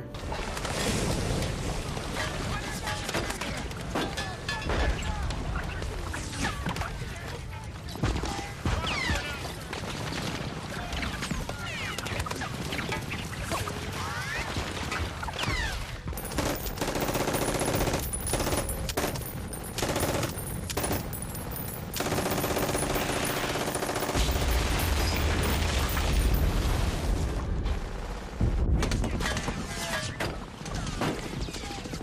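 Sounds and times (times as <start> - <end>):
rifle fire: 16.2 - 27.0
machine-gun fire: 16.2 - 27.3.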